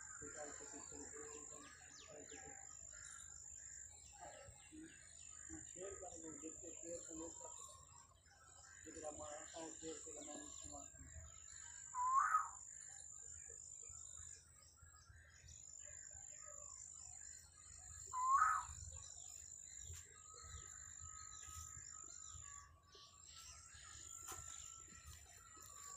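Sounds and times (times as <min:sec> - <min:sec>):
bird chirping: 0:00.0 - 0:25.9.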